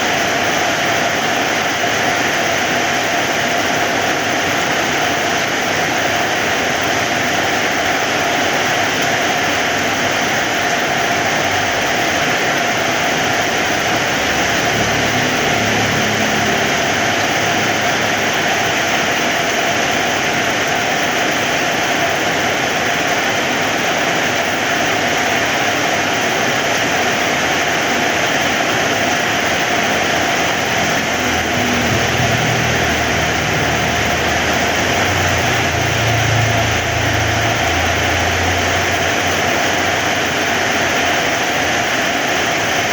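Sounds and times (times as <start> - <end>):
heavy rain: 0.0 - 42.9
low engine-like rumble: 12.6 - 20.2, 28.6 - 40.5.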